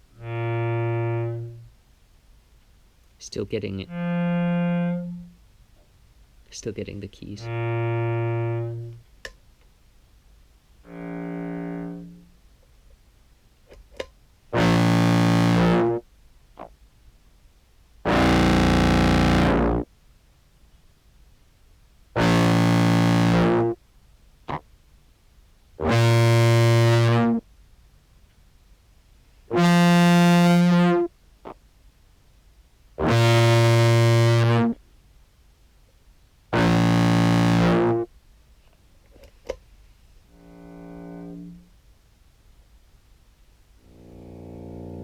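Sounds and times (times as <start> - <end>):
low clarinet notes: 0.0 - 1.7, 3.7 - 5.4, 7.2 - 9.0, 10.8 - 12.3, 14.6 - 16.0, 18.1 - 19.9, 22.2 - 23.8, 25.8 - 27.4, 29.5 - 31.1, 33.0 - 34.8, 36.6 - 38.1, 40.3 - 41.7, 43.8 - 45.0.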